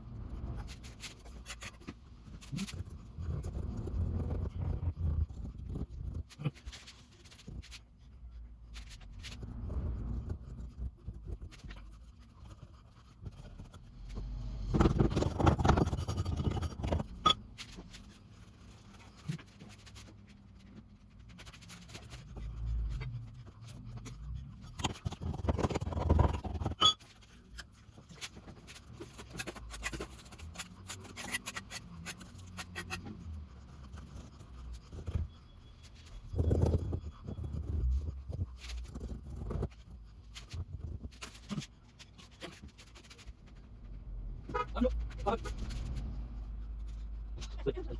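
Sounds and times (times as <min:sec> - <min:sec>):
trowel scraping mortar: 0:28.7 - 0:37.6.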